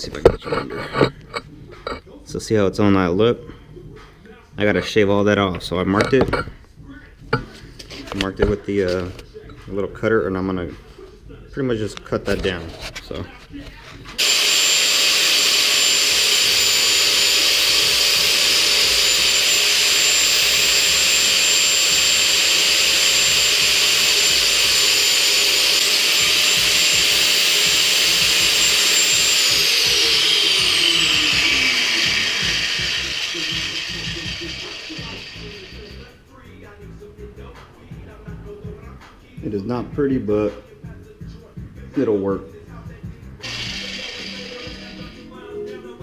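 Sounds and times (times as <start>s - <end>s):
rotary cutter whining: 14.2s - 36.1s, 43.4s - 46.0s.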